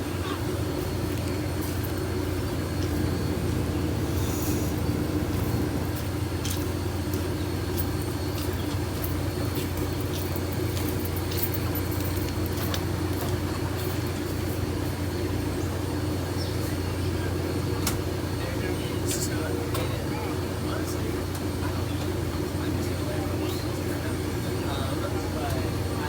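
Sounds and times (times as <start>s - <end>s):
train mechanical drone: 0.0s - 26.0s.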